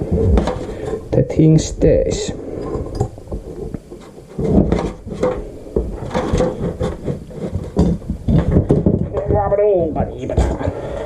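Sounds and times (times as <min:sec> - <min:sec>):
hand tools knocking and scraping metal: 0:02.6 - 0:11.0.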